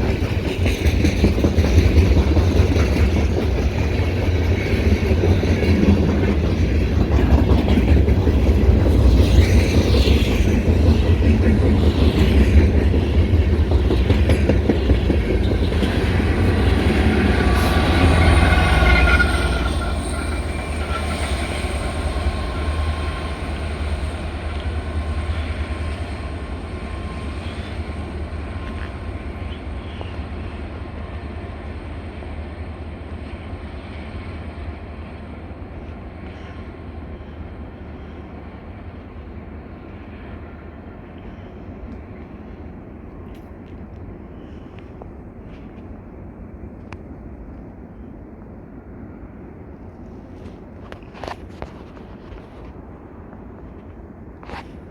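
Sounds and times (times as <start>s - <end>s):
train wheels clattering on rails: 0.0s - 40.4s.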